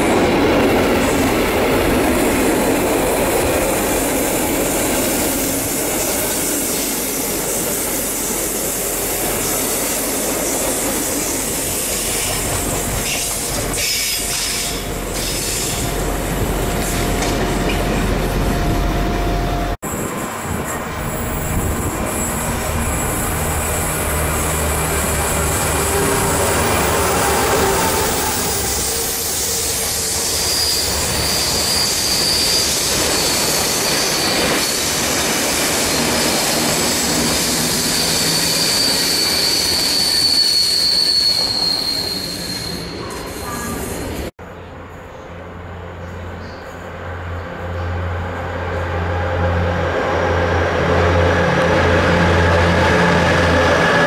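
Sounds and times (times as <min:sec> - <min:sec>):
diesel locomotive engine hum: 0:00.0 - 0:39.4, 0:42.9 - 0:54.0
high wheel squeal: 0:19.9 - 0:44.3.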